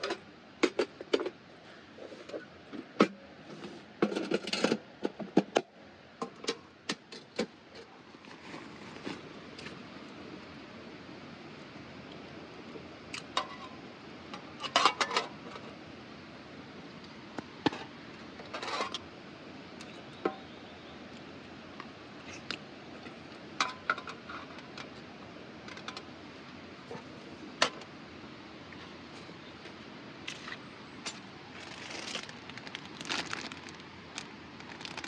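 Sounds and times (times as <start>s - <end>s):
rustling: 8.2s - 9.8s, 30.4s - 35.0s.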